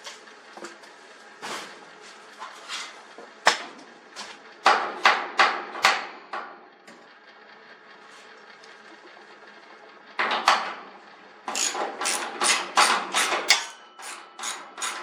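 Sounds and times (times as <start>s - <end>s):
knocks and clanks on metal hardware: 10.2s - 10.8s, 11.5s - 15.0s.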